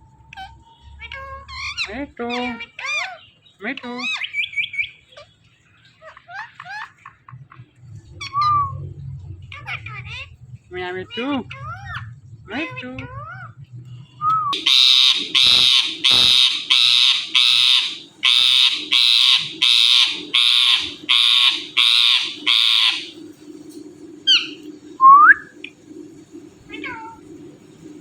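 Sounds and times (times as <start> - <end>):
low steady hum: 0.0 - 28.0
parrot squawking: 0.3 - 7.2, 9.5 - 10.4, 11.0 - 13.6, 14.5 - 23.2, 24.3 - 24.7, 26.7 - 27.3
parrot whistles: 14.2 - 23.1, 24.3 - 25.6.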